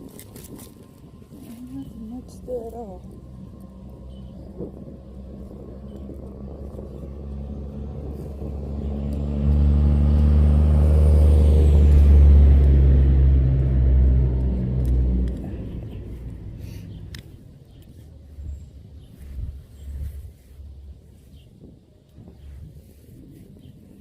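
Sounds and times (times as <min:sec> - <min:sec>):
engine rumbling: 0:00.0 - 0:24.0.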